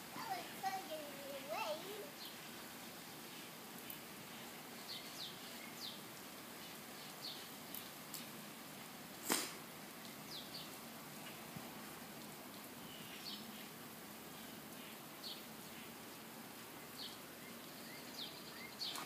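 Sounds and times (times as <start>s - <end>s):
steady hiss: 0.0s - 19.0s
birds chirping: 0.1s - 2.6s, 3.3s - 8.2s, 10.2s - 10.8s, 12.6s - 19.0s.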